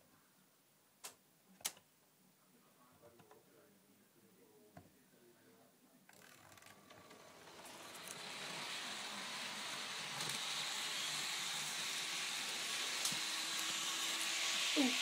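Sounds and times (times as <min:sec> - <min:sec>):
model train whirring on track: 0:06.1 - 0:15.0.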